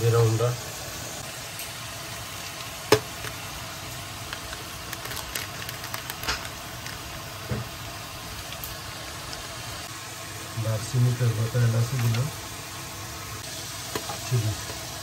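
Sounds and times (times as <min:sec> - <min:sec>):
masala sizzling in a pan: 0:00.0 - 0:15.0
foil packet crinkling: 0:02.6 - 0:07.5.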